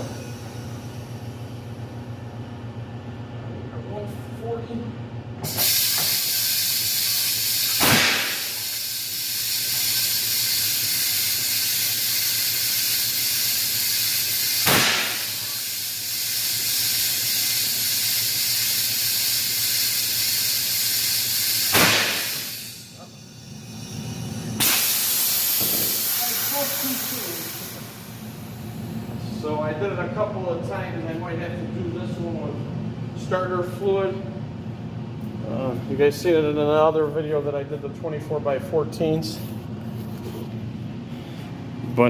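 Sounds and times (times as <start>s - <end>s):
compressed air hissing into tire: 5.4s - 29.0s.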